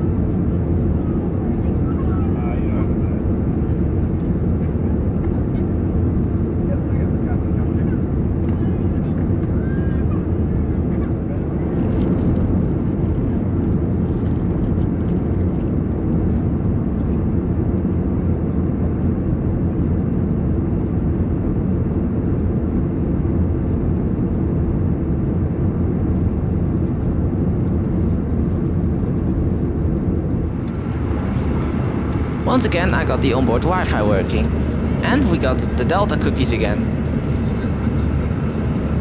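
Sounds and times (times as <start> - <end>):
airplane cabin engine roar: 30.2 - 39.0.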